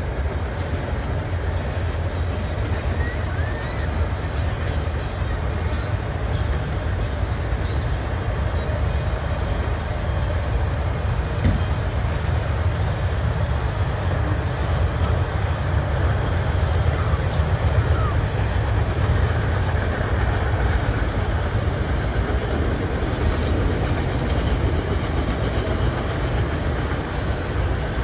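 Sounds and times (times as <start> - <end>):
freight train wheels on rail: 0.0 - 28.0.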